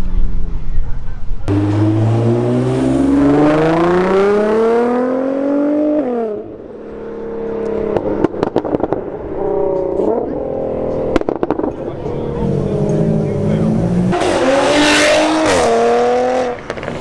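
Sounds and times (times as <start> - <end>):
car engine revving: 1.5 - 17.0
exhaust pops: 16.6 - 17.0.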